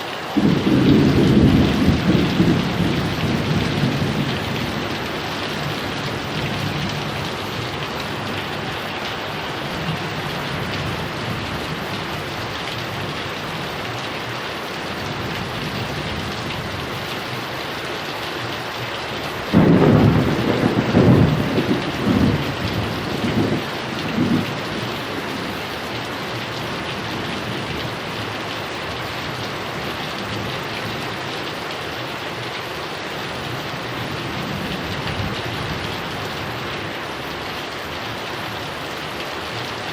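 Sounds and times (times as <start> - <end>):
heavy rain: 0.0 - 39.9
rolling thunderclap: 0.4 - 8.8, 19.5 - 25.6.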